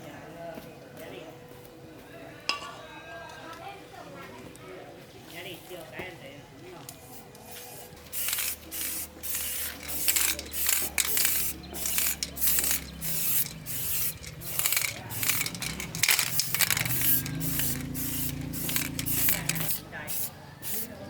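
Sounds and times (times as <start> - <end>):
short bursts of hissing spray: 7.1 - 21.0.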